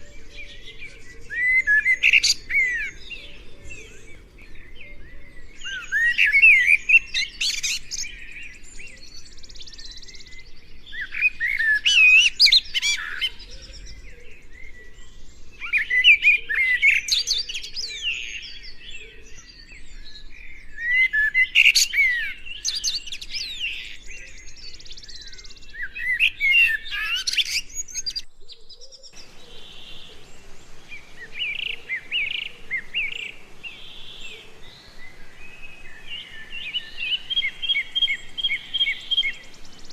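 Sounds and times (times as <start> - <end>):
songbird warbling: 0.0 - 4.2, 20.8 - 39.9
faint bird chirping: 0.0 - 39.9.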